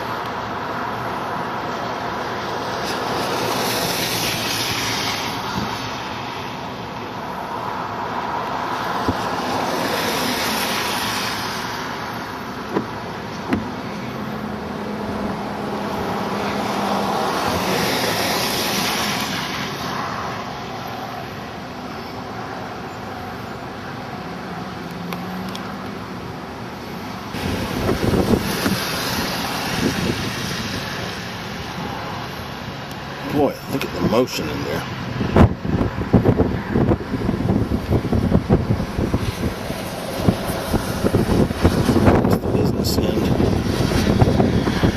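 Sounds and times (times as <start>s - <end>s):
cars passing: 0.0s - 44.9s.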